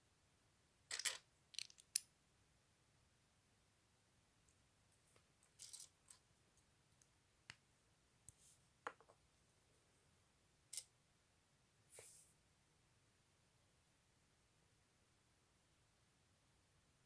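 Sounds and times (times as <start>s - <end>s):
plastic lego pieces clicking: 0.9s - 2.0s.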